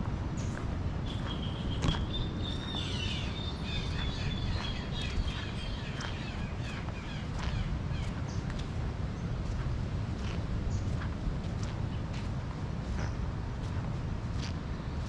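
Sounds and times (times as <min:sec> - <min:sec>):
birds chirping: 0:00.4 - 0:09.5.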